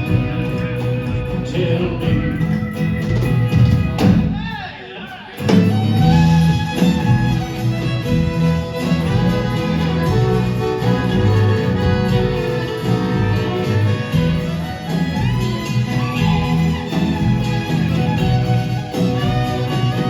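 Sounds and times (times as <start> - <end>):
steady bass: 0.0 - 4.5, 5.4 - 20.0
strummed guitars: 0.0 - 20.0
violin: 5.5 - 20.0.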